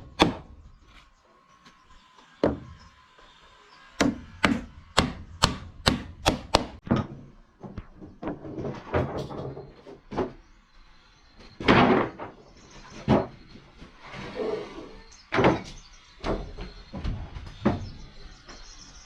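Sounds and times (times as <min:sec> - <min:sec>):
wooden knocks and thuds: 0:00.0 - 0:00.6, 0:02.4 - 0:02.8, 0:04.0 - 0:10.4.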